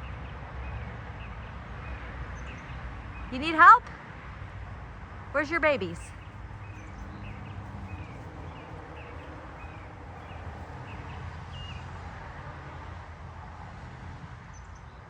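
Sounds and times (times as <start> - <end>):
outdoor background noise: 0.0 - 15.0
bird high chirp calls: 5.4 - 11.8.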